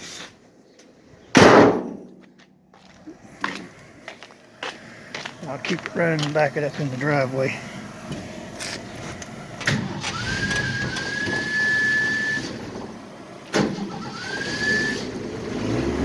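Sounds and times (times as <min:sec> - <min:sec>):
engine low rumble: 0:02.0 - 0:16.0
engine starter clunks: 0:08.0 - 0:16.0.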